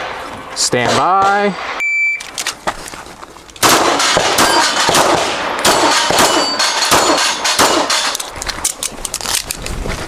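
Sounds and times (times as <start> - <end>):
pistol shots: 3.6 - 8.3
steel target clanging: 4.0 - 5.0, 5.7 - 8.2.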